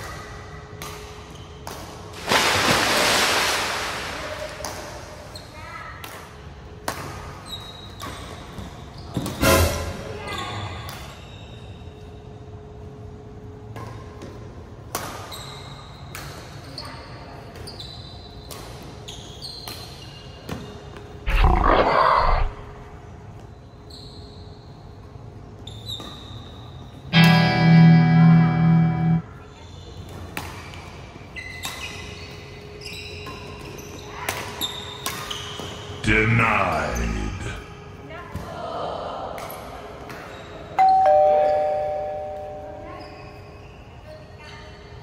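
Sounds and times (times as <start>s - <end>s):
roar-like sound effect: 21.3s - 23.0s.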